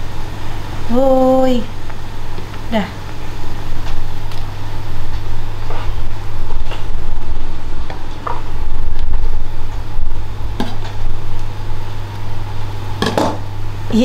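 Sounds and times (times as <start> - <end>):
steady low hum and rumble: 0.0 - 14.0.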